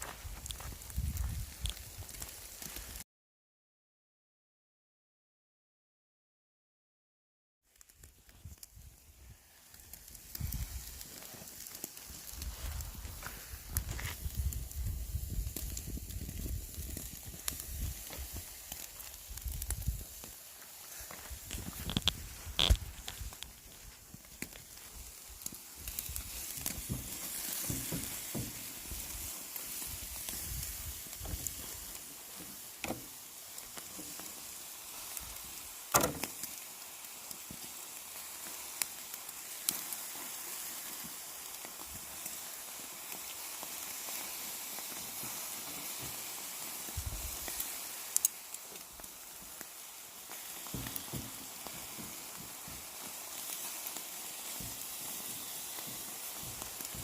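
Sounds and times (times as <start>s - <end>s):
meat sizzling on a grill: 0.0s - 3.0s, 7.7s - 57.0s
clicks and pops: 21.5s - 23.5s.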